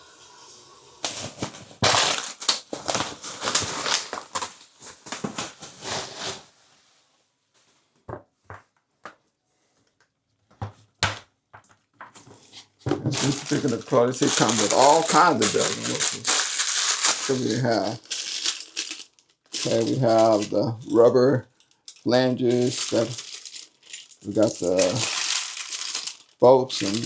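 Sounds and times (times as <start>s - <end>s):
packaging crinkling and rustling: 1.0s - 6.6s, 12.2s - 27.0s.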